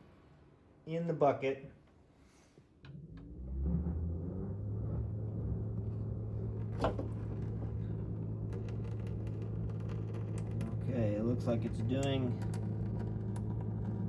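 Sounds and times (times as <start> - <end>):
drain pump humming: 5.6 - 14.0.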